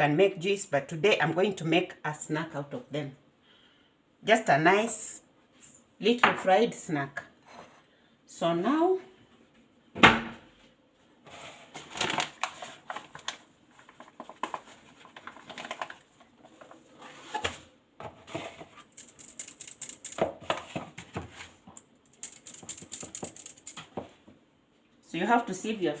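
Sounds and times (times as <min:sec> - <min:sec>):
sieve rattling and tapping: 0:18.4 - 0:20.8, 0:22.0 - 0:24.0.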